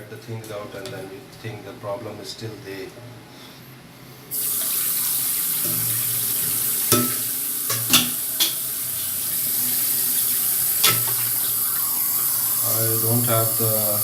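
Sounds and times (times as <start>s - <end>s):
water running: 4.3s - 14.0s
sink tap turned on: 4.4s - 14.0s.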